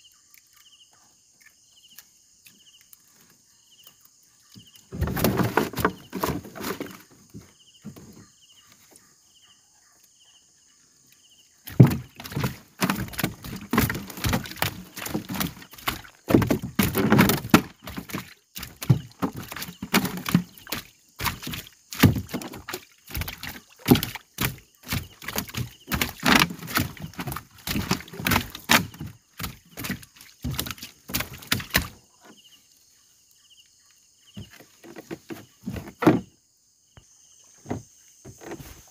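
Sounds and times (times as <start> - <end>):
fishing net knocks and rustles: 4.9 - 8.3, 11.7 - 32.4, 34.3 - 36.4, 37.6 - 38.9
water splashes: 11.6 - 32.0.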